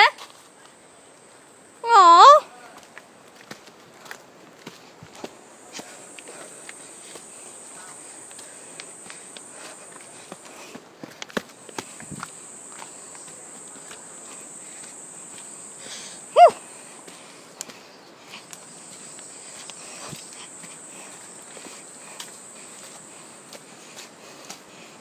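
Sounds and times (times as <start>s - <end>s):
footsteps through undergrowth: 2.7s - 15.7s.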